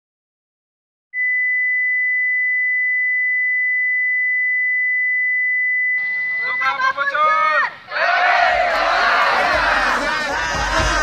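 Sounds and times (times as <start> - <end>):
high-pitched electronic beep tone: 1.2 - 7.1.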